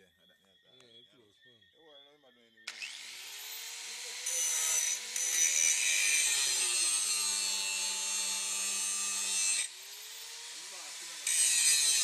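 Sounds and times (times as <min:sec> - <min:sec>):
angle grinder grinding steel: 0:02.7 - 0:12.0.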